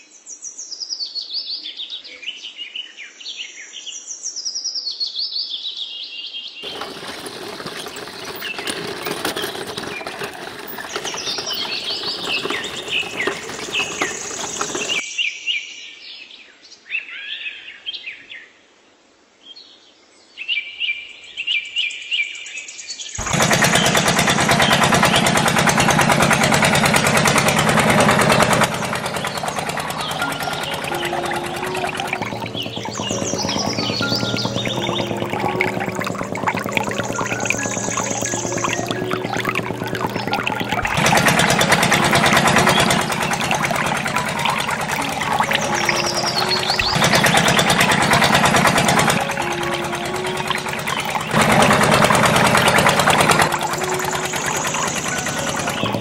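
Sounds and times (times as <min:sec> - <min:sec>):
small motor driving water pump: 0:06.6 - 0:15.0, 0:23.2 - 0:56.0.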